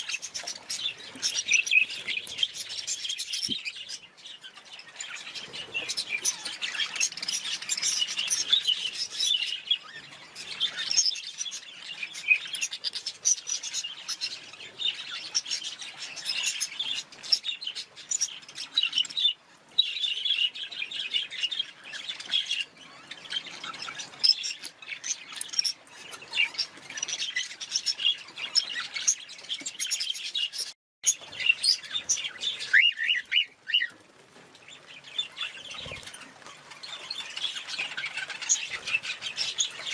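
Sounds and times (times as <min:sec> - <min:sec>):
budgerigars chattering: 0:31.4 - 0:33.9.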